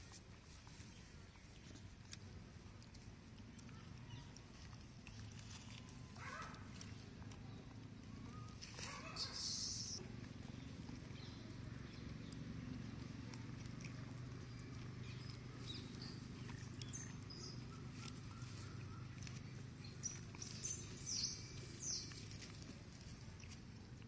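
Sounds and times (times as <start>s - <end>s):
birds chirping: 3.7s - 13.2s, 14.4s - 22.6s.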